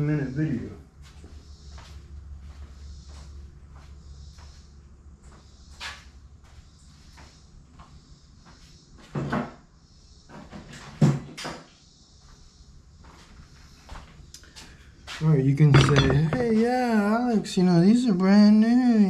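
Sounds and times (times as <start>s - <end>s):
objects knocking and clunking: 15.7s - 16.6s.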